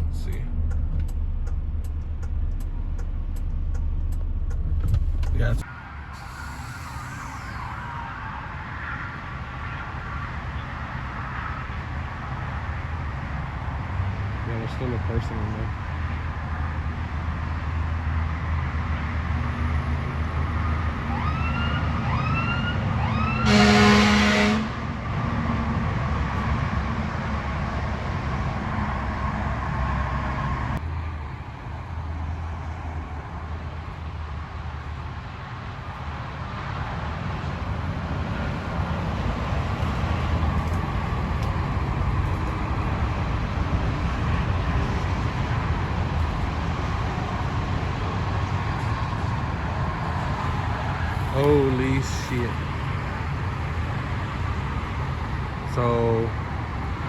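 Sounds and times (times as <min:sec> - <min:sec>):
rising siren chirps: 0:00.0 - 0:10.3, 0:20.5 - 0:23.9.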